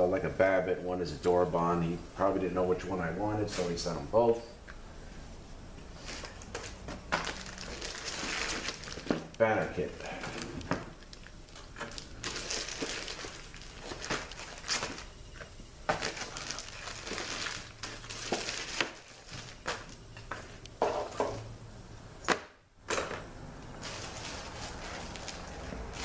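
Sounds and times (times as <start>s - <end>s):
plastic packaging crinkling: 6.0s - 20.6s, 23.8s - 26.0s.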